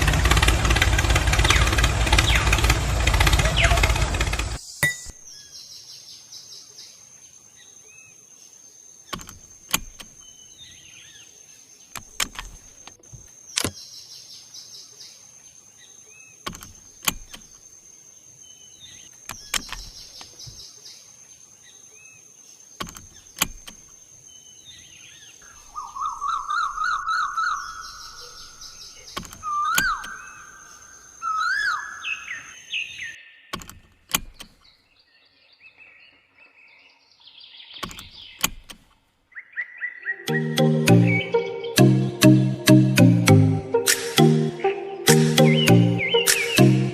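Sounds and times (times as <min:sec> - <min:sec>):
birds calling and chirping: 0:00.0 - 0:46.9
sharp clicks: 0:11.9 - 0:13.8, 0:46.2 - 0:46.6.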